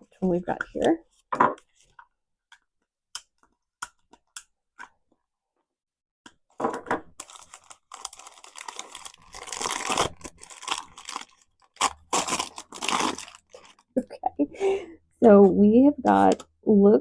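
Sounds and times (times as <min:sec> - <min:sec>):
plastic packaging crinkling: 0:07.1 - 0:14.0.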